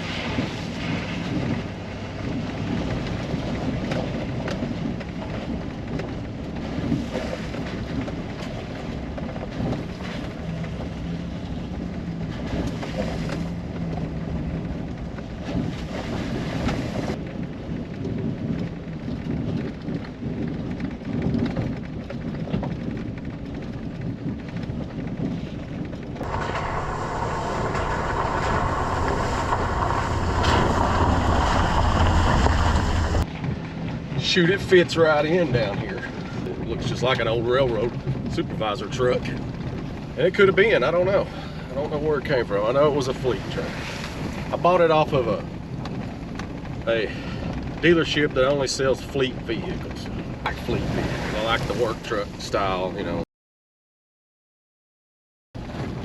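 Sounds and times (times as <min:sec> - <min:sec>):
road wind and rain noise: 0:00.0 - 0:53.2, 0:55.6 - 0:56.0
truck engine drone: 0:07.5 - 0:19.4, 0:25.9 - 0:49.1.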